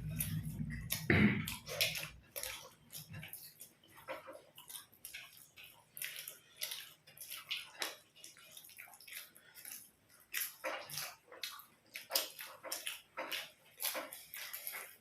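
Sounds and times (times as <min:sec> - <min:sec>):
low hum: 0:00.0 - 0:01.6
chewing and wet mouth clicks: 0:00.0 - 0:15.0.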